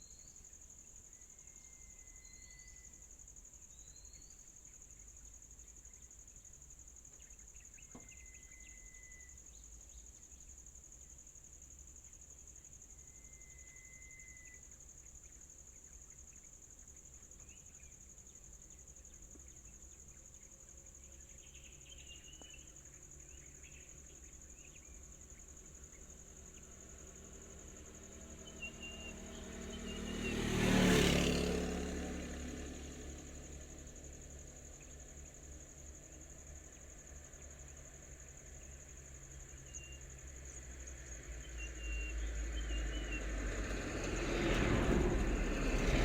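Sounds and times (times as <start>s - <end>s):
high insect drone: 0.0s - 46.0s
short bird chirps: 7.8s - 9.5s
vehicle engine passing: 26.3s - 37.9s, 40.4s - 46.0s.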